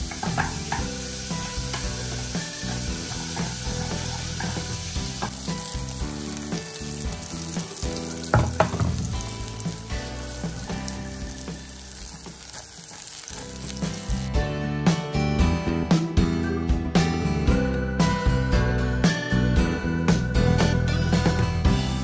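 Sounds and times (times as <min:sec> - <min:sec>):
food sizzling in frying pan: 0:00.0 - 0:14.4
guitar music: 0:00.0 - 0:22.0
pan clattering: 0:01.7 - 0:14.2
wooden spoon stirring: 0:02.1 - 0:14.3.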